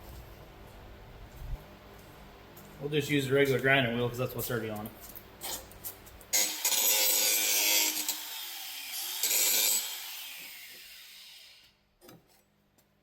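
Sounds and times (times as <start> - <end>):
angle grinder grinding metal: 6.3 - 11.6.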